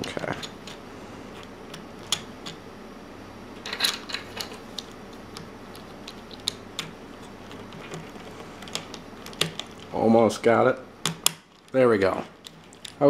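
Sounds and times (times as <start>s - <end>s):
plastic puzzle pieces clicking: 4.4s - 9.9s, 11.0s - 13.0s.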